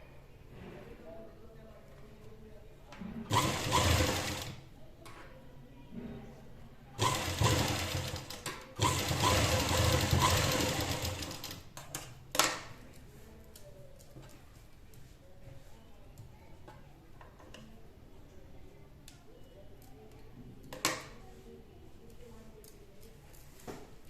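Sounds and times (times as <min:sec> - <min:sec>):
sewing machine stitching: 0:03.3 - 0:04.6, 0:07.0 - 0:11.6.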